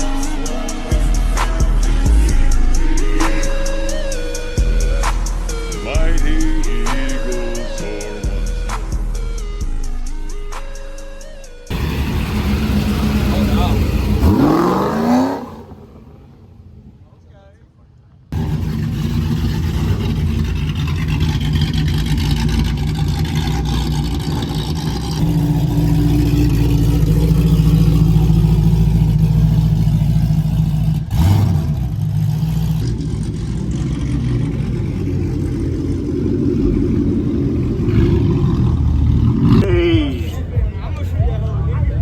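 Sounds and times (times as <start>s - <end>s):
car engine revving: 11.7s - 17.0s, 18.3s - 39.7s.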